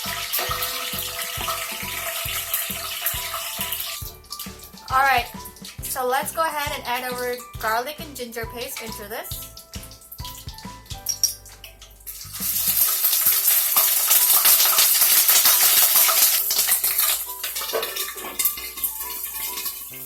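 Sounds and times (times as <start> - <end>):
hot oil sizzling and spattering: 0.0 - 20.0.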